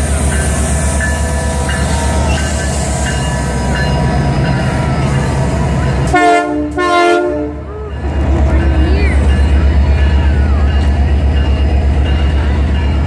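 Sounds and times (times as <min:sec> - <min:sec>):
diesel locomotive rumbling: 0:00.0 - 0:13.0
locomotive air horn chord: 0:05.9 - 0:07.7.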